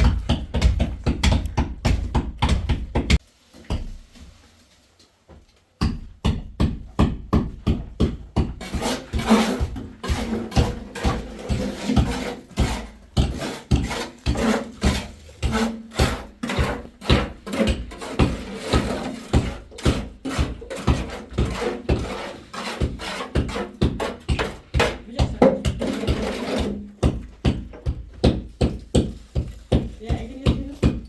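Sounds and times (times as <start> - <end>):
rasping scraping strokes: 8.6 - 25.0, 25.8 - 26.8.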